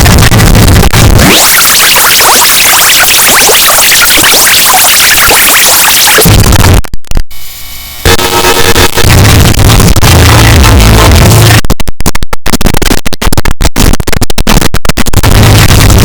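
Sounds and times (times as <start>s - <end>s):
loud steady pitched tones: 0.0s - 11.7s
heavily distorted music: 0.0s - 11.8s, 12.6s - 16.0s.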